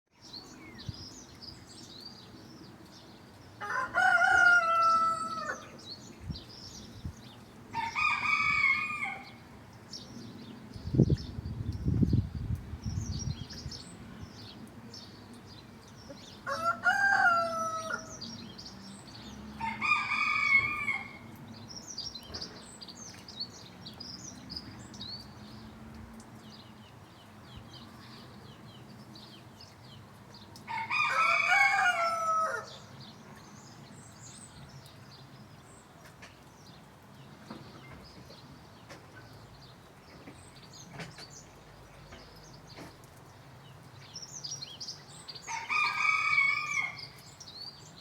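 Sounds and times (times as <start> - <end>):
songbirds chirping: 0.1 - 48.0
roosters crowing: 3.6 - 5.8, 7.7 - 9.4, 16.4 - 18.3, 19.6 - 21.3, 30.7 - 32.9, 45.4 - 47.2.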